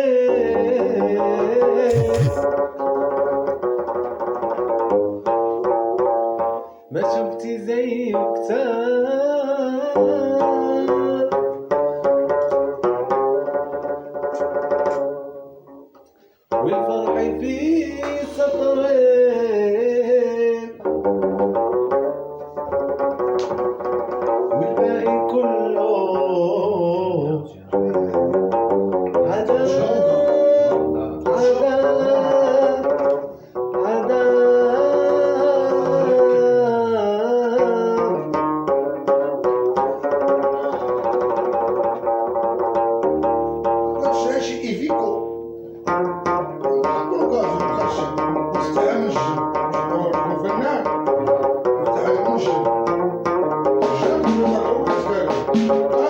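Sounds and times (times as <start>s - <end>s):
song with ornamented singing: 0.0s - 2.6s, 53.8s - 56.0s
plucked string instrument: 0.0s - 56.0s.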